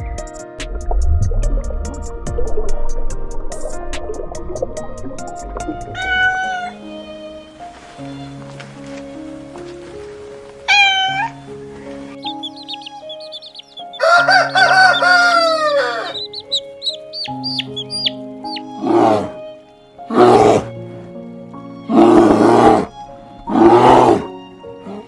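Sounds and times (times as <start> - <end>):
background music: 0.0 - 25.0
harsh raspy bird calls: 12.2 - 19.3
rooster crowing: 13.8 - 16.5.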